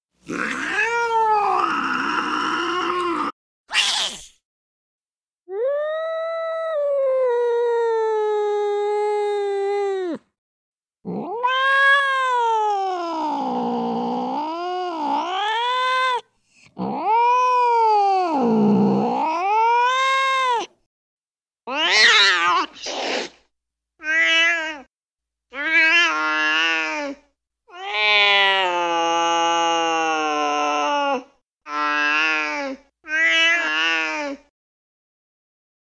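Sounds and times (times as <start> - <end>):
cat yowling: 0.3 - 4.3, 11.1 - 16.2, 16.8 - 20.7, 21.7 - 22.9, 24.0 - 24.9
cat meowing: 11.1 - 13.3, 21.7 - 22.8, 24.0 - 24.9.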